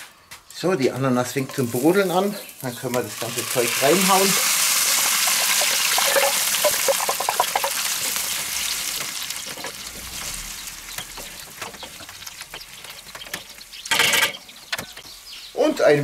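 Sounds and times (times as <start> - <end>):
food sizzling in a hot pan: 1.6 - 11.6.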